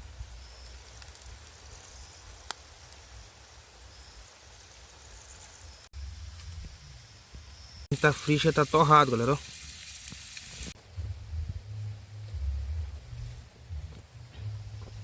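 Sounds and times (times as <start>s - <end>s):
low rumble: 10.7s - 15.0s.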